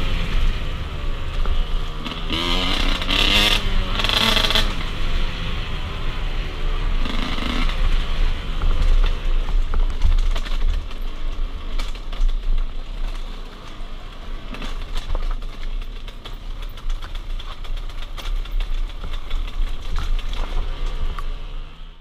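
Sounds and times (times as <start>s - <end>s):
sharp clicks and knocks: 8.6s - 21.4s.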